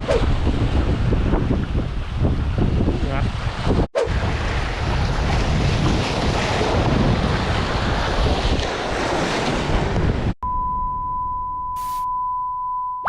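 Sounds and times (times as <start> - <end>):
wind buffeting microphone: 0.0 - 10.4
waves breaking: 3.5 - 10.3
high electronic beep tone: 10.4 - 13.0.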